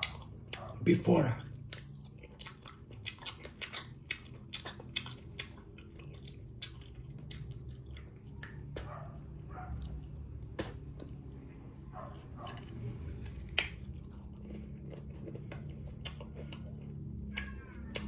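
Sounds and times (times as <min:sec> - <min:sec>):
chewing crisp fruit: 0:00.0 - 0:18.0.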